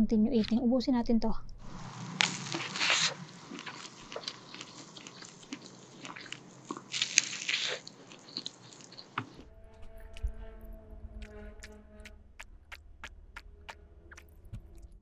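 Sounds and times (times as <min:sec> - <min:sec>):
biting and chewing: 0:01.7 - 0:10.3
wet mouth clicks: 0:01.8 - 0:09.4, 0:12.4 - 0:14.9.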